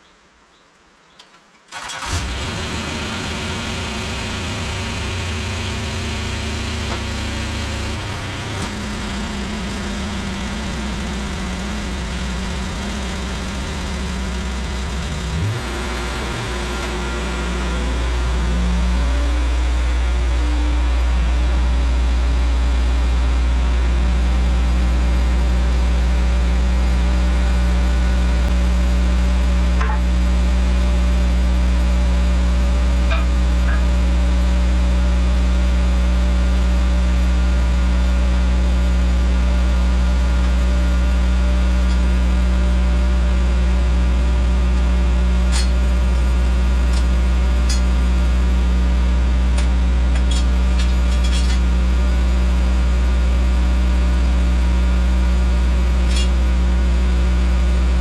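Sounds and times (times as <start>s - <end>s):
engine running steadily: 1.8s - 58.0s.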